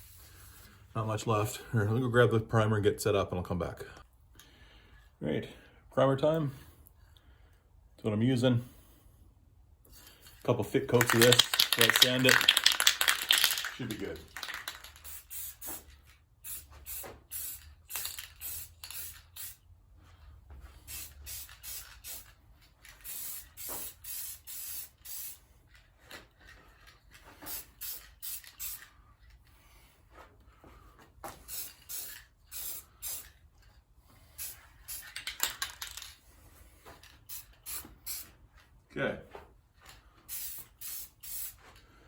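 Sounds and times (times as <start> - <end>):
aerosol spray hissing: 15.0 - 19.6, 20.8 - 22.3, 23.0 - 25.5, 27.4 - 28.9, 31.4 - 33.3, 34.2 - 35.0, 40.3 - 41.6.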